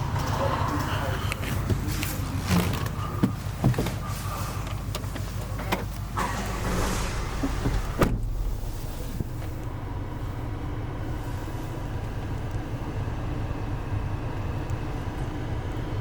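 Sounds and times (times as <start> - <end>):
car low hum: 0.0 - 16.0
sharp thump: 6.2 - 10.0.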